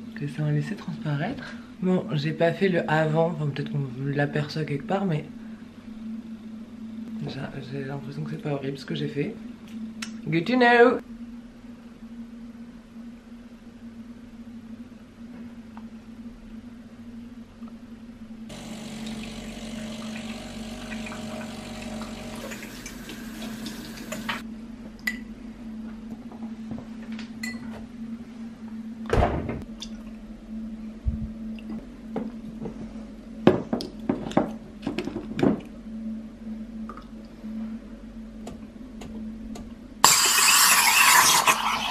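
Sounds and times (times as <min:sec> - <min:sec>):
low steady hum: 0:00.0 - 0:40.2
water running: 0:18.5 - 0:24.4.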